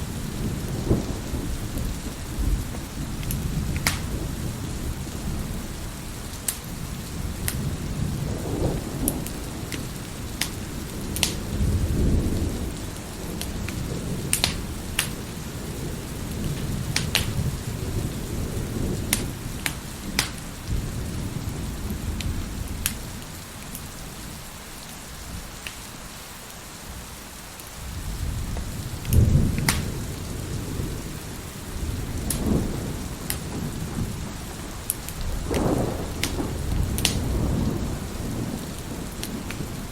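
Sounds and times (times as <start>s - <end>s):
thunder rolling: 0.0s - 6.0s, 6.7s - 23.3s, 27.8s - 39.9s
fire crackling and popping: 0.0s - 24.0s, 24.8s - 26.0s, 27.6s - 39.9s
heavy rain: 0.0s - 39.9s.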